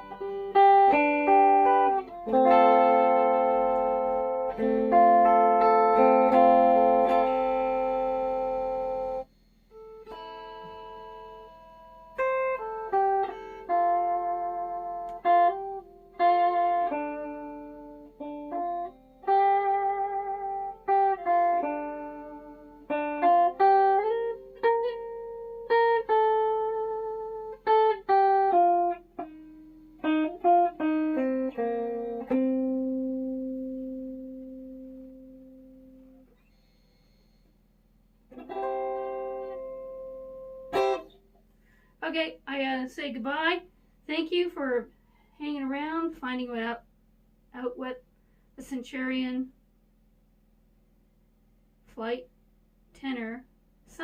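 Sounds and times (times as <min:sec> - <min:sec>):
electric ukulele plucked notes and chords: 0:00.0 - 0:36.4, 0:38.3 - 0:41.4.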